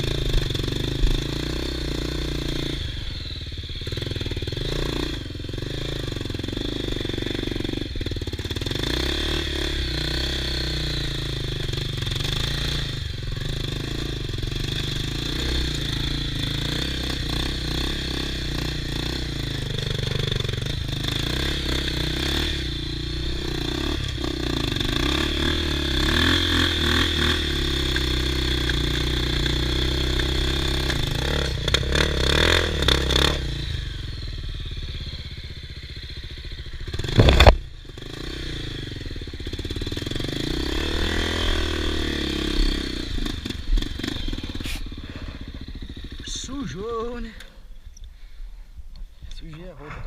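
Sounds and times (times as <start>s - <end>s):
motorbike engine revving: 0.0s - 47.7s
loud thump: 37.1s - 37.6s.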